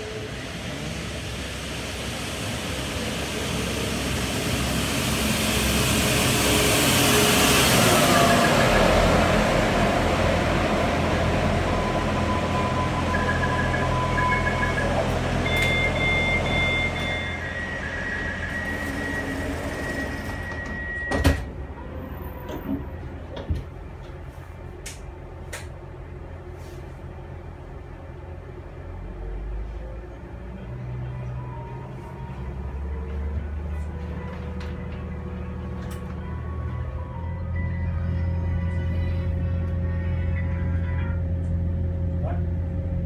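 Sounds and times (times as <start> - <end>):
diesel engine running: 0.0 - 43.0
long warning tone: 11.1 - 22.1
door warning beeps: 12.4 - 21.5
sliding doors shutting: 13.9 - 23.8.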